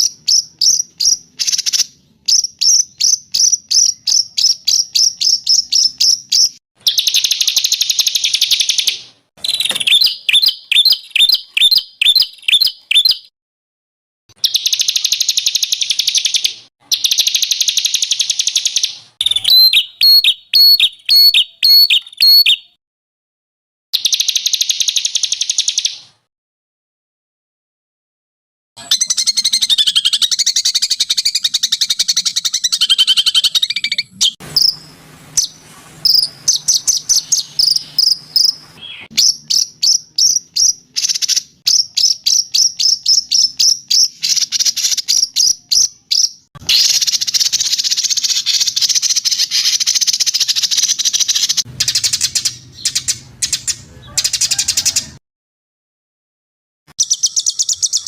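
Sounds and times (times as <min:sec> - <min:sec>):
songbird buzzy trill: 0:00.0 - 0:13.3, 0:14.4 - 0:22.8, 0:28.8 - 0:53.8, 0:57.0 - 0:58.0
songbird high chirps: 0:00.0 - 0:13.3, 0:14.3 - 0:22.8, 0:24.0 - 0:26.1, 0:28.8 - 0:55.0, 0:57.0 - 0:58.0.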